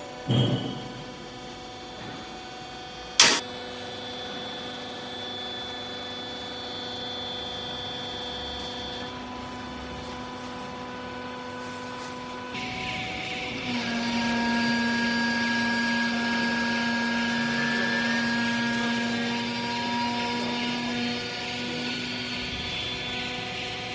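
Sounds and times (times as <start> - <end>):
hydraulic baler humming: 3.2 - 3.4
loud machine clunk: 3.2 - 3.4.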